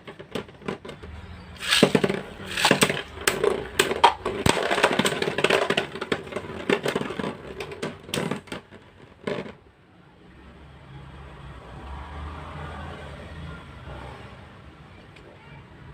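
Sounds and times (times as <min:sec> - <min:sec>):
spinning tops clashing: 0:01.6 - 0:06.9.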